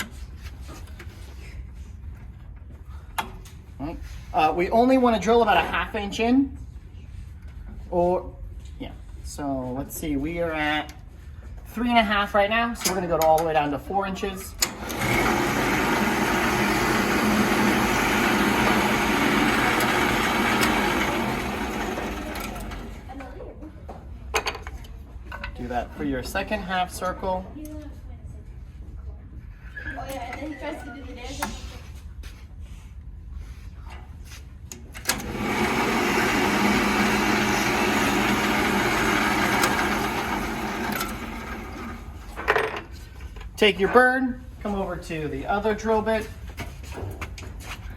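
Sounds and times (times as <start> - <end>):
drill press boring wood: 14.5 - 23.1, 35.0 - 42.6.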